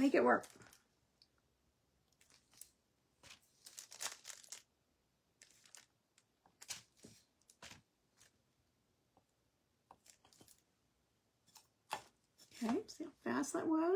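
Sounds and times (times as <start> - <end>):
crinkly rustles: 0.0 - 0.9, 2.1 - 4.8, 5.4 - 8.4, 10.0 - 10.7.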